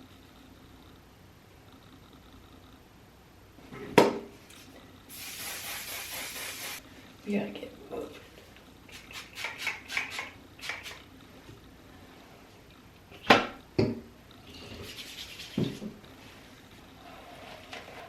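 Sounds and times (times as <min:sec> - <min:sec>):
rustling hiss: 0:05.1 - 0:06.8.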